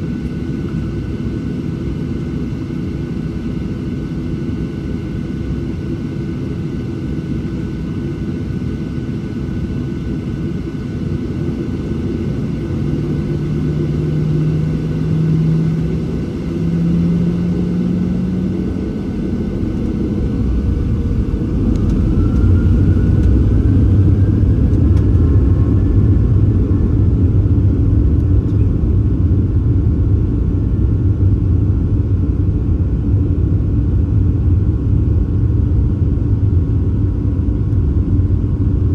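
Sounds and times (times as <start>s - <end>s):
faint rising whine: 12.5s - 28.8s
jet engines spooling up: 13.2s - 28.5s
low rumble: 16.8s - 37.0s.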